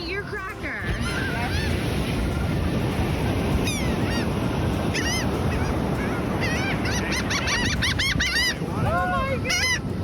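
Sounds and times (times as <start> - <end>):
honking bird calls: 3.6 - 8.7, 9.4 - 10.0.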